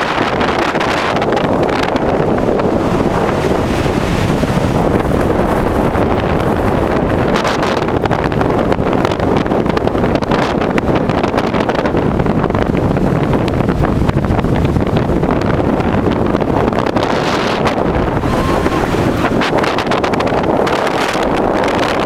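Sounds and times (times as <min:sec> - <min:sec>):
storm wind buffeting microphone: 0:00.0 - 0:22.0.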